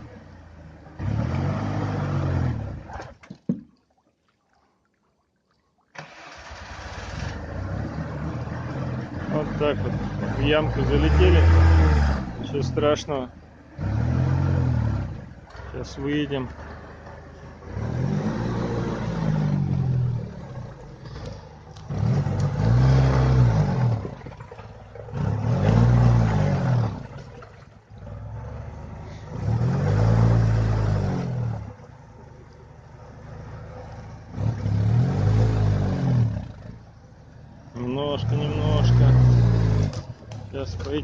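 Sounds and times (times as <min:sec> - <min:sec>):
small engine revving: 0:06.0 - 0:13.0, 0:13.7 - 0:27.3, 0:28.0 - 0:31.9, 0:33.0 - 0:36.9, 0:38.1 - 0:41.0.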